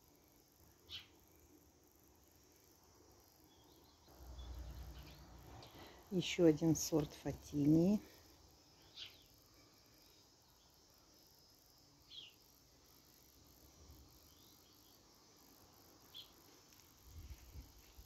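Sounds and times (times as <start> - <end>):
small bird chirping: 0.9 - 1.2, 3.5 - 5.8, 8.8 - 9.5, 12.0 - 12.4, 16.1 - 16.4.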